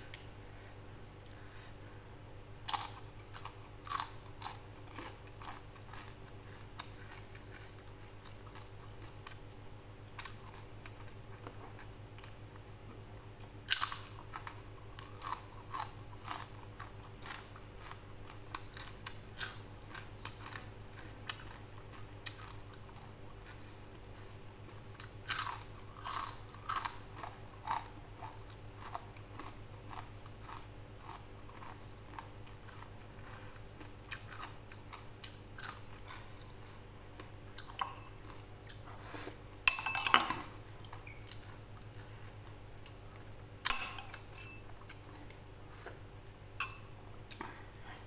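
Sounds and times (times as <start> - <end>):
crunching crisp cracker: 2.6 - 12.6, 13.4 - 39.2.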